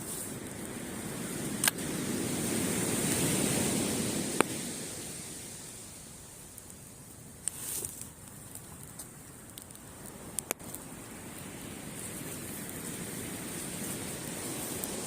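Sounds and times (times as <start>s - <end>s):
surf breaking on beach: 0.0s - 6.6s, 9.9s - 15.0s
campfire crackling and popping: 0.0s - 15.0s.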